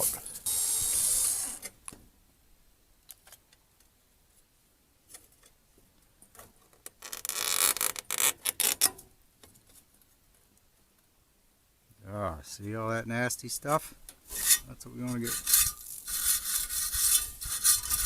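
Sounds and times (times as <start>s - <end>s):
brush scraping in tube: 14.3s - 18.0s.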